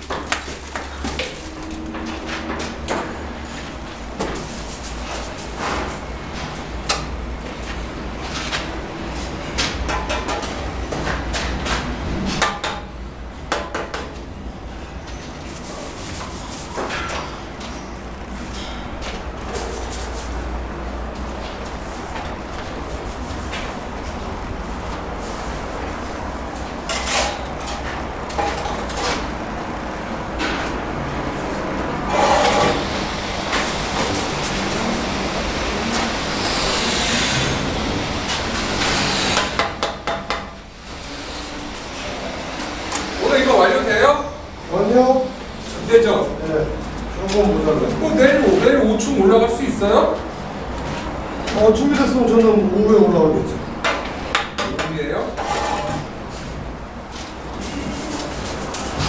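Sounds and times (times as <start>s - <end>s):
steel trowel scraping mortar: 31.5s - 35.2s, 55.4s - 56.1s, 57.6s - 59.0s.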